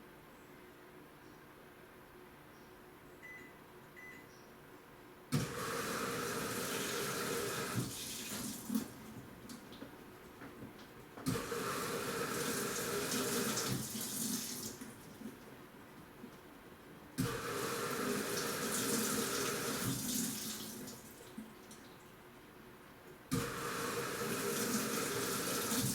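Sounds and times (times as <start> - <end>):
running water: 5.4 - 10.0, 11.4 - 15.5, 17.5 - 22.2, 23.7 - 25.9.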